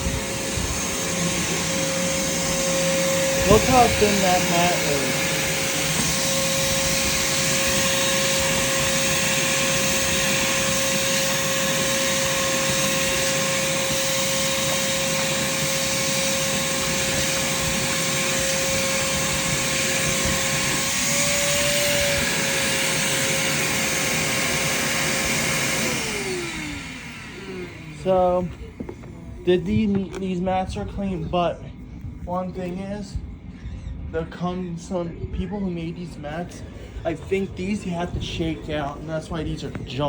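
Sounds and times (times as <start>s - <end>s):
vacuum cleaner running: 0.0s - 30.2s.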